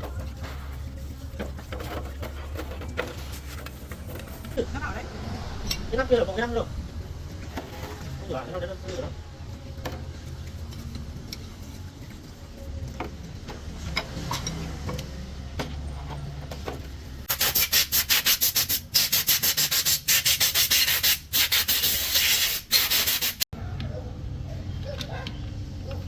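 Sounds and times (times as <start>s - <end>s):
low hum: 3.2s - 9.8s.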